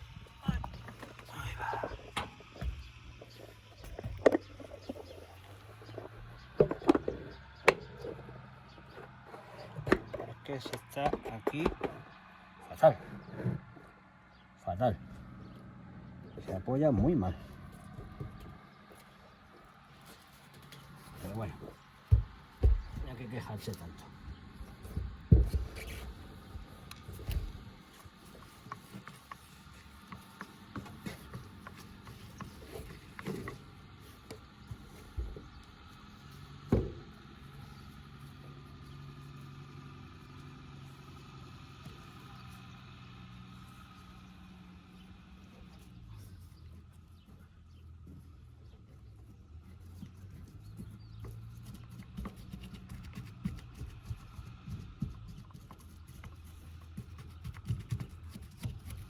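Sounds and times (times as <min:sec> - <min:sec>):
hands tapping and scraping materials: 0:24.6 - 0:35.6, 0:49.8 - 0:59.0.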